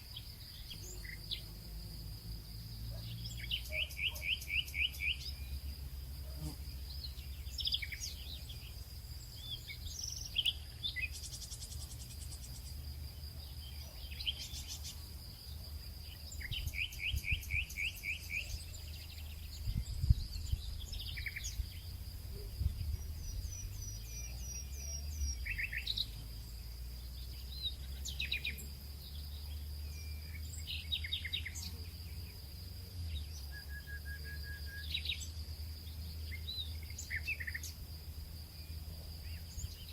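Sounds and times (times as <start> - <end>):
birds calling and singing: 0.0 - 5.7, 6.4 - 39.9
high insect drone: 0.0 - 39.9.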